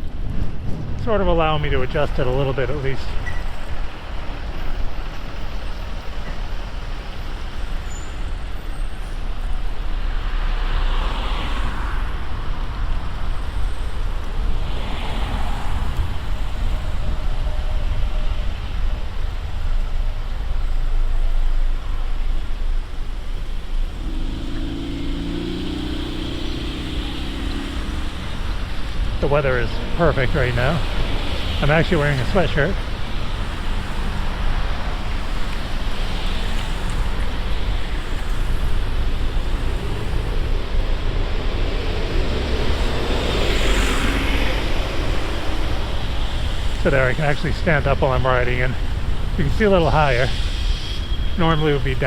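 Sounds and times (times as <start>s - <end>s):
vehicles passing: 0.0s - 52.0s
wind and road noise: 0.0s - 52.0s
low humming engine: 15.6s - 46.9s.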